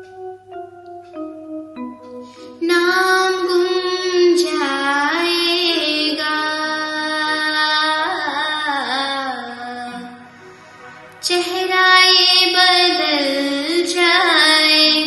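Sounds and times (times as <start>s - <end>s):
woman singing wordless notes: 2.2s - 10.4s, 11.2s - 15.0s.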